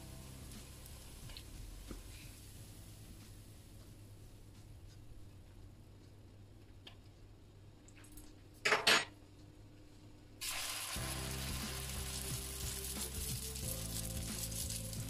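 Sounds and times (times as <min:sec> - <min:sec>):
batter sizzling in hot oil: 0:00.0 - 0:03.6, 0:10.4 - 0:15.0.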